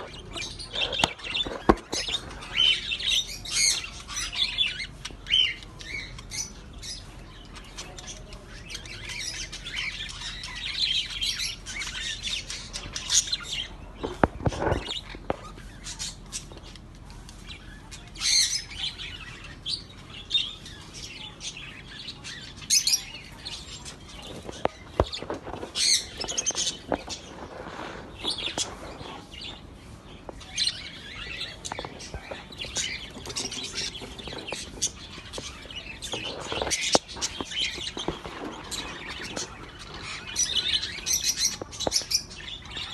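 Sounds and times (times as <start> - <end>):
budgerigars chirping: 0.0 - 16.8, 28.1 - 42.9.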